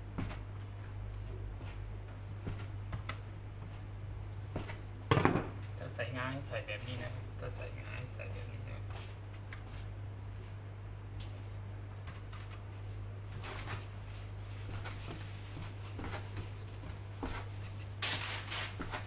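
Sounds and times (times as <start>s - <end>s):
hands pressing dough rustling: 0.0s - 5.7s, 11.2s - 19.0s
steady low hum: 0.0s - 19.0s.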